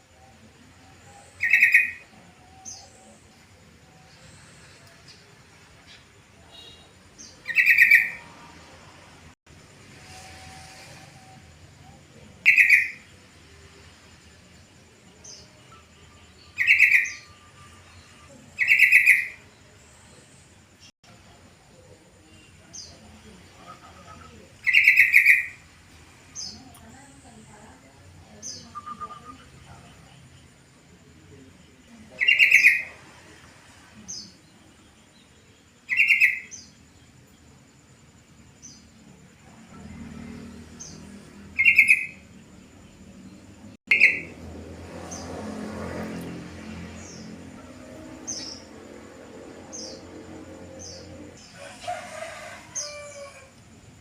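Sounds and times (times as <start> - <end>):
bulbul singing: 0.0 - 8.5, 15.0 - 20.4, 40.7 - 45.4.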